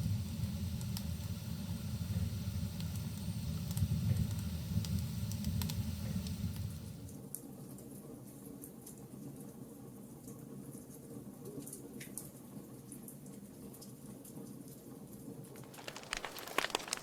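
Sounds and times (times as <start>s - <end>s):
low rumble of flames: 0.0s - 7.1s
logs crackling and popping: 2.7s - 7.1s, 15.6s - 17.0s.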